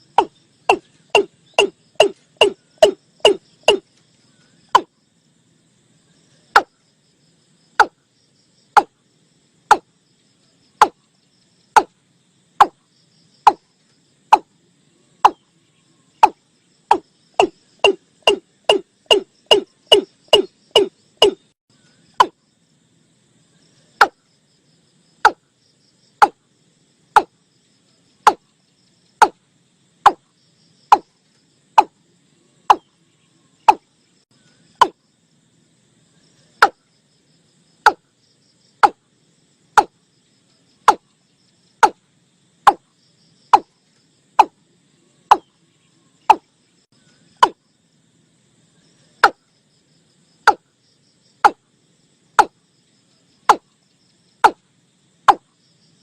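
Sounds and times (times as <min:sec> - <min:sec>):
watercock calls: 0:00.2 - 0:03.8, 0:16.2 - 0:21.4.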